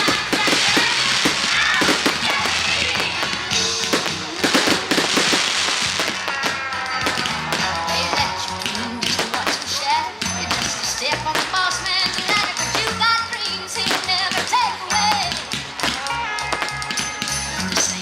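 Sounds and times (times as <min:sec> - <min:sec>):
fireworks bangs and crackles: 0:00.0 - 0:18.0
music playing: 0:00.0 - 0:18.0.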